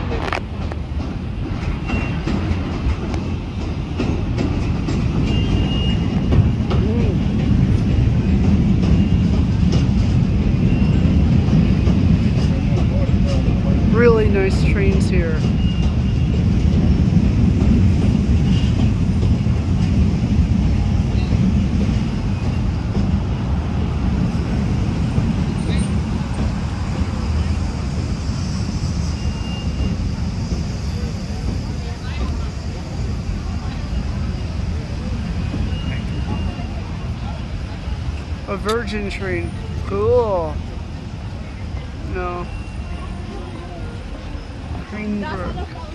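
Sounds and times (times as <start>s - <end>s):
wheels clicking over rail joints: 0.0s - 28.4s
train rumbling over bridge: 0.0s - 45.9s.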